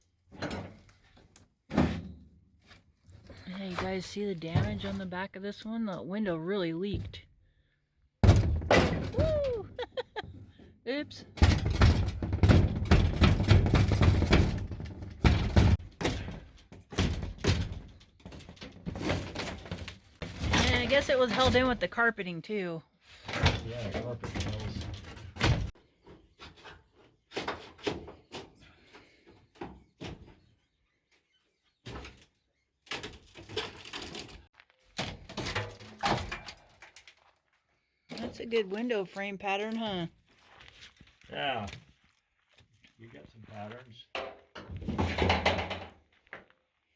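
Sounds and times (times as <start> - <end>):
thump: 8.2 - 9.2
wood scraping and rattling: 11.4 - 22.1, 23.2 - 30.5, 31.9 - 37.3, 44.2 - 46.2.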